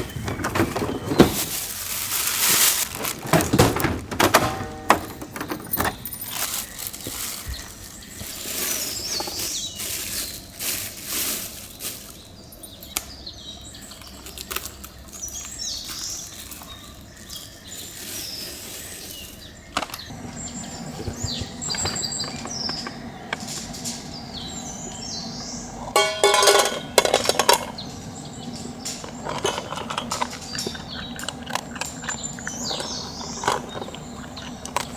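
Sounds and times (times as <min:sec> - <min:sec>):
birds chirping: 0:00.0 - 0:34.9
low steady hum: 0:20.1 - 0:34.9.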